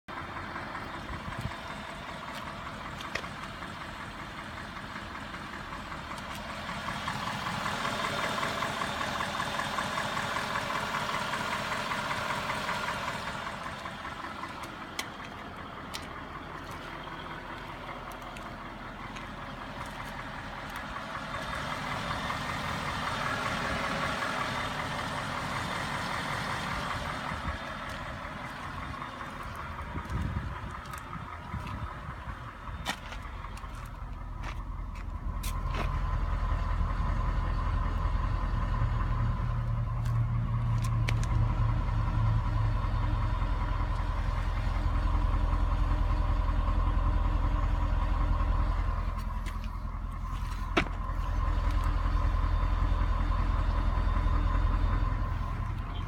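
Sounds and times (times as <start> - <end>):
car engine running: 0.1 - 56.0
fast engine ticking: 0.1 - 56.0.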